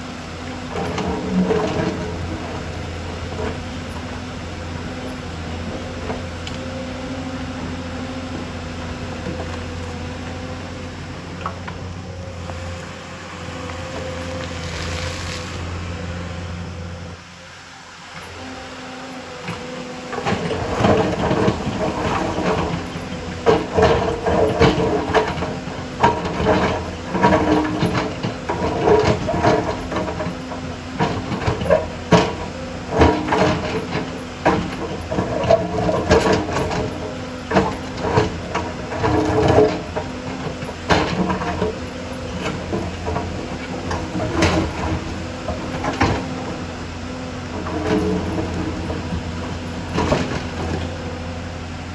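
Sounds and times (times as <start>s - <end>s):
diesel engine running under load: 0.0s - 51.9s
knocks and clatter of rock: 0.2s - 10.5s, 19.5s - 51.3s.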